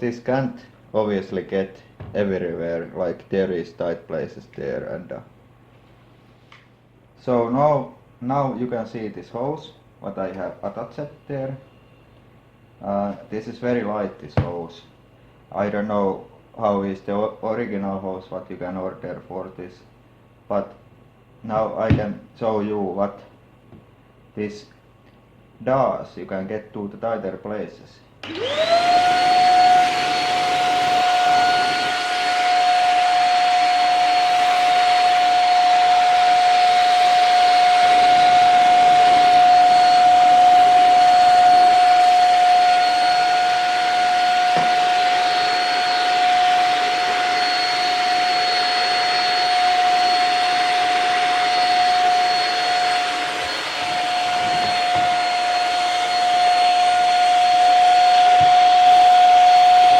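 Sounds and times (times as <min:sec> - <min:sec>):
vacuum cleaner motor whine: 0:28.2 - 0:59.9.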